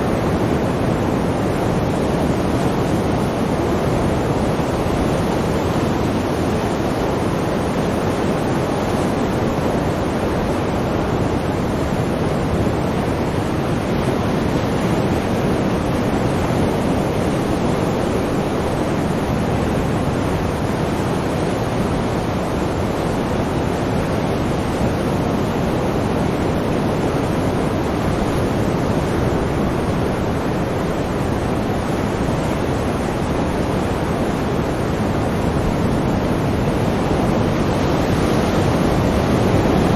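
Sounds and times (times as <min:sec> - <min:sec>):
sea surf washing: 0:00.0 - 0:39.9.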